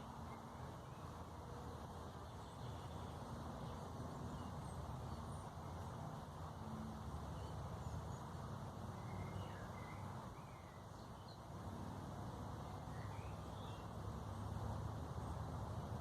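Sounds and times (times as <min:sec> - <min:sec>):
small birds chirping faintly: 0:00.0 - 0:16.0.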